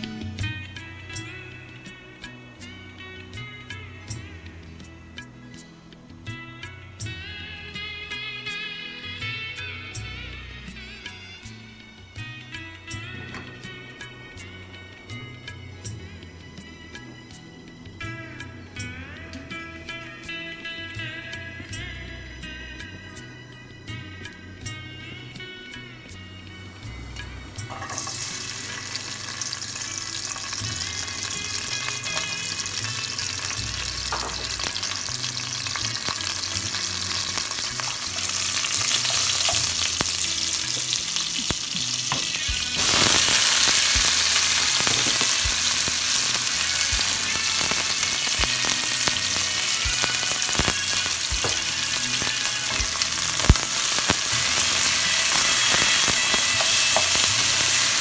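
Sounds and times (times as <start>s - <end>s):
onions frying: 26.6s - 58.0s
garlic sizzling in hot oil: 26.7s - 58.0s.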